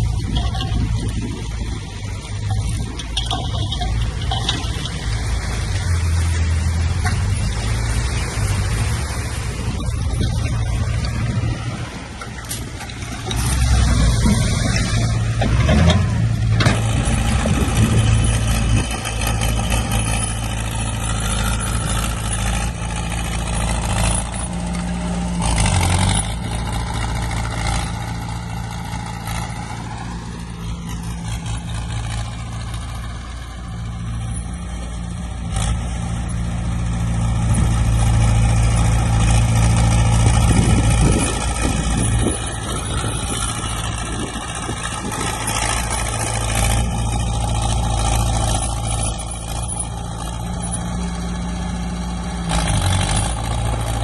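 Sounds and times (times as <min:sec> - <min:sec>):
heavy diesel machinery running: 0:00.0 - 0:54.0
metal knocks and clanks: 0:00.1 - 0:05.3, 0:12.2 - 0:18.9.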